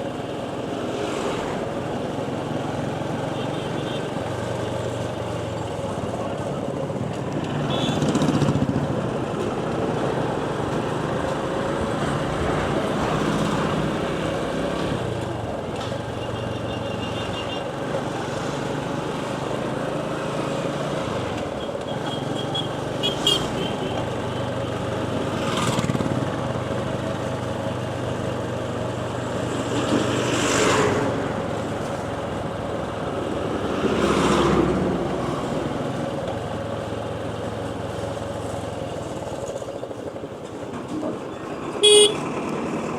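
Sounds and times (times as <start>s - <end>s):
road and wind noise: 0.0s - 42.9s
vehicles passing: 0.0s - 42.9s
motorcycle engine running: 6.9s - 9.3s.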